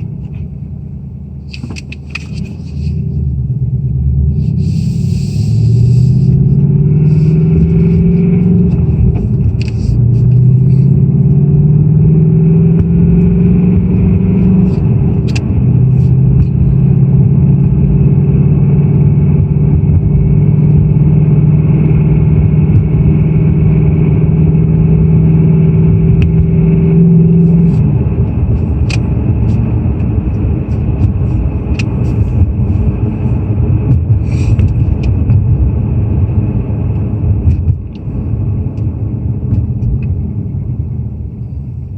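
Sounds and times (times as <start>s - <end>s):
car engine idling with rattle: 0.0s - 11.4s, 13.8s - 18.0s, 27.4s - 41.9s.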